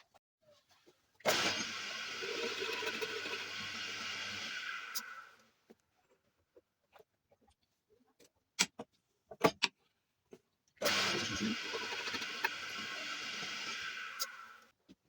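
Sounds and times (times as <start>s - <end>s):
electric motor whirring: 10.8s - 14.6s.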